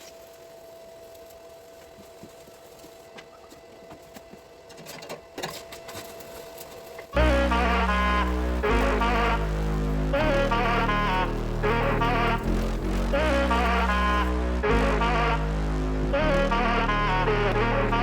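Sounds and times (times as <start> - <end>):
loud music with heavy bass: 7.2 - 18.0.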